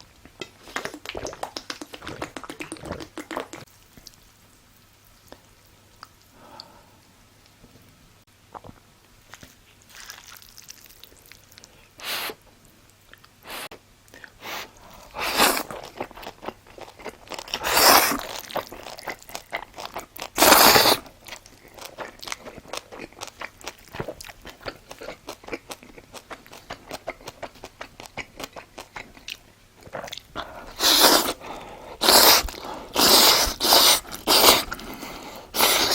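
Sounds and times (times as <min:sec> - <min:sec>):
crunching crisp food: 0:09.2 - 0:11.8, 0:15.0 - 0:31.4.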